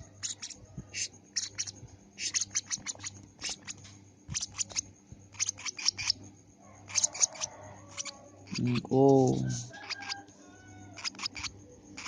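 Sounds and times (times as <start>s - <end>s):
lovebird chirping: 0.0s - 6.2s, 6.9s - 9.1s, 11.0s - 12.0s.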